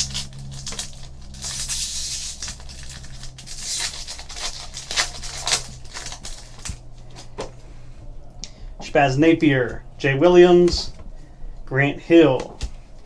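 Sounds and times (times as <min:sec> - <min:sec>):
wrapper tearing and crinkling: 0:00.0 - 0:07.3.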